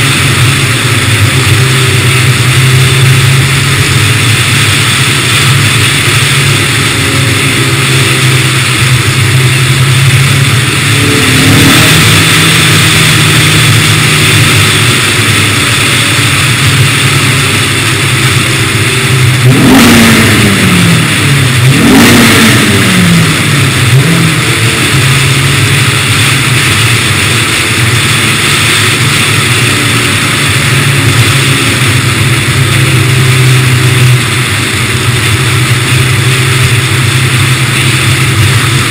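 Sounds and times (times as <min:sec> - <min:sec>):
car engine revving: 0:00.0 - 0:38.9
road and air noise: 0:00.0 - 0:38.9.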